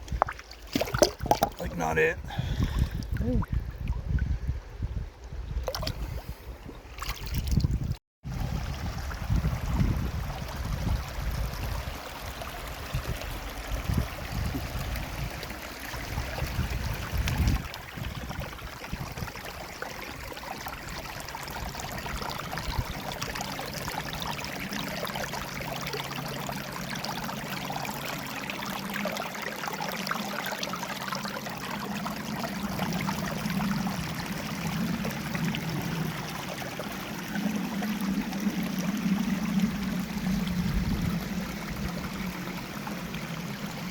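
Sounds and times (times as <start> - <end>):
low rumbling: 32.5 - 43.9.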